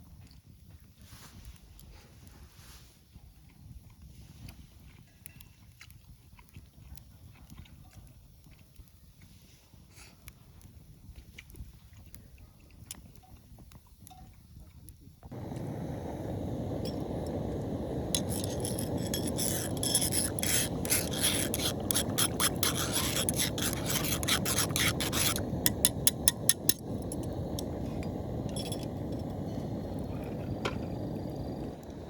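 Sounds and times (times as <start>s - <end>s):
steady low rumble: 15.3s - 32.0s
rasping scraping strokes: 15.4s - 31.6s.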